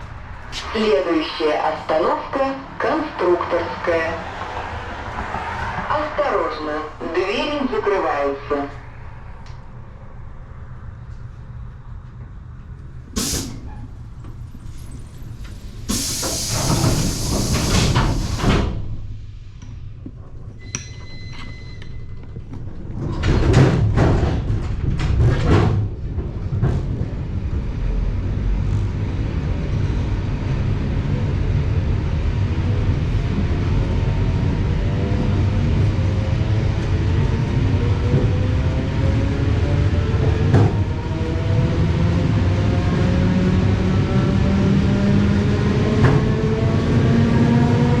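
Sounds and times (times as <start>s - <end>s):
pneumatic hiss: 15.9s - 18.6s
sliding doors thudding shut: 16.0s - 18.9s.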